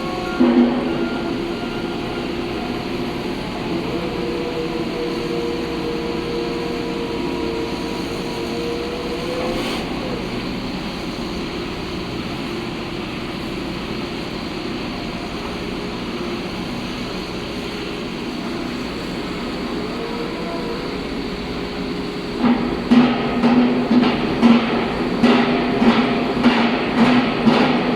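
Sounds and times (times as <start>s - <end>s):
heavy machinery engine drone: 0.0s - 27.9s
held whine: 0.0s - 27.9s.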